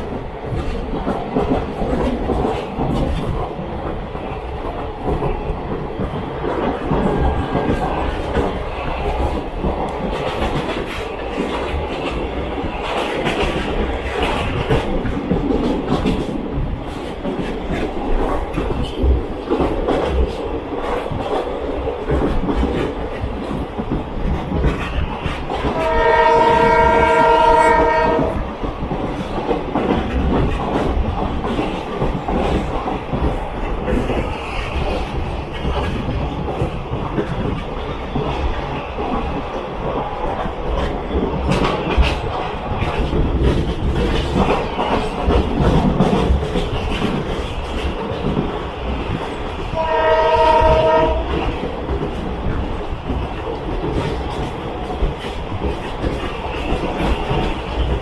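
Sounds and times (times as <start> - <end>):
train rumbling on track: 0.0 - 58.0
train horn blast: 25.8 - 28.4, 49.8 - 51.3.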